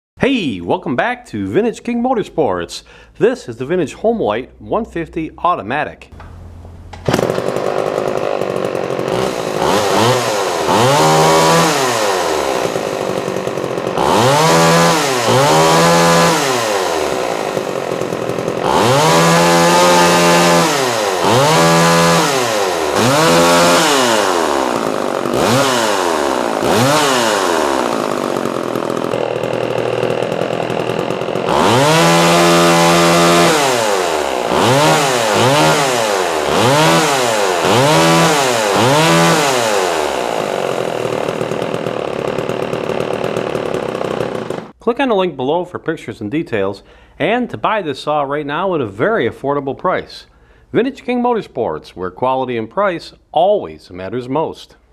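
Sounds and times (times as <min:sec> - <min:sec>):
chainsaw engine revving: 0:06.1 - 0:44.8.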